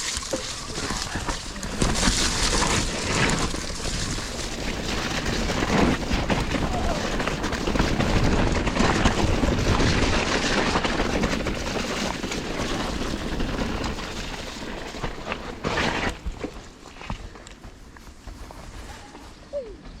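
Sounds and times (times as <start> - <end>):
bike rattling over rough ground: 0.0 - 20.0.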